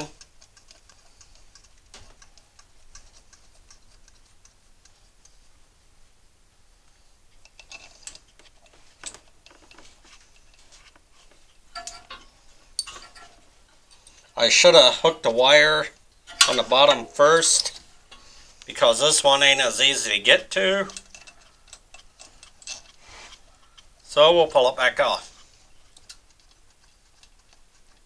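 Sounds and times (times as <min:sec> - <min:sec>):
metallic clicks of hand tools: 0:00.0 - 0:05.4, 0:20.7 - 0:24.1.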